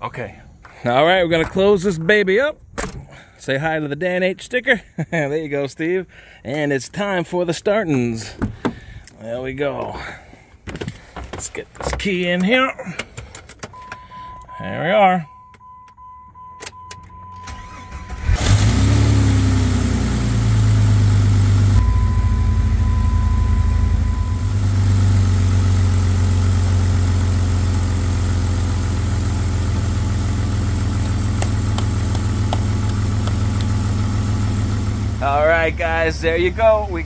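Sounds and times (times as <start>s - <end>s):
car engine starting and idling: 15.7s - 37.0s
engine ticking: 28.6s - 37.0s.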